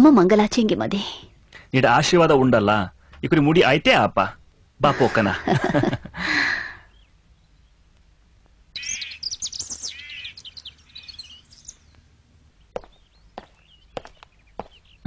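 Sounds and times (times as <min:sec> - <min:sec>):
bird chirping and singing: 0:08.8 - 0:15.0.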